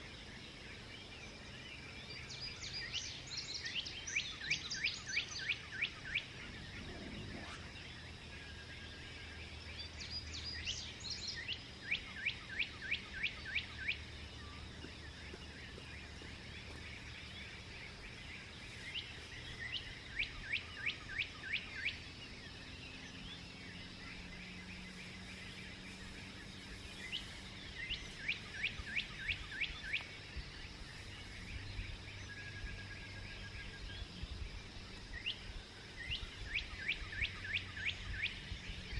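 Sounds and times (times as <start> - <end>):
birds chirping: 0.0 - 38.9
songbird whistling: 26.8 - 30.2, 36.0 - 38.4.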